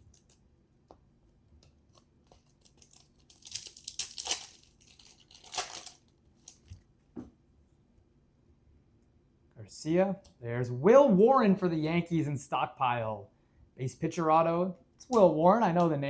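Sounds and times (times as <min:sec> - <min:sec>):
foil wrapper tearing: 0:01.9 - 0:06.8.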